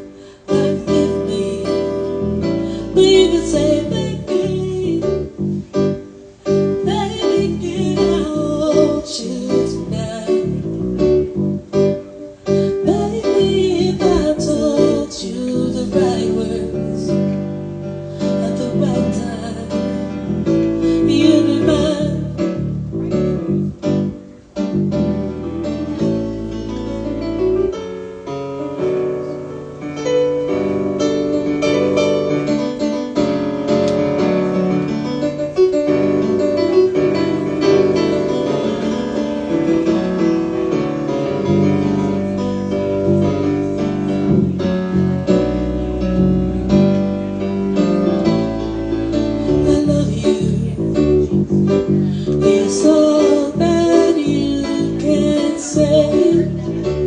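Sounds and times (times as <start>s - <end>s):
woman singing: 0.0s - 5.3s, 6.8s - 10.7s, 12.6s - 17.4s, 18.2s - 20.2s, 20.8s - 22.6s, 49.4s - 51.4s, 52.2s - 57.0s
piano chords on keyboard: 0.0s - 57.0s.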